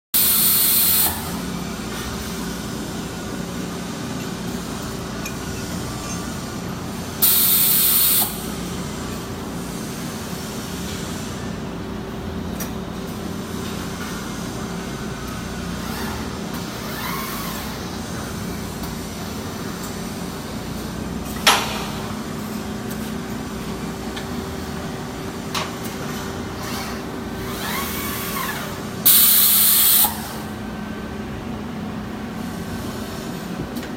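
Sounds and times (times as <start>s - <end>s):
loud hissing bursts: 7.2s - 8.5s.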